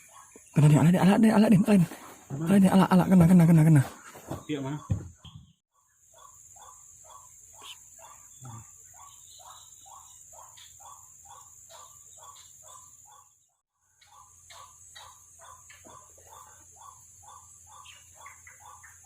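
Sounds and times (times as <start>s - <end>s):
high insect drone: 6.0s - 13.3s
animal calls: 6.1s - 13.4s, 14.0s - 19.0s.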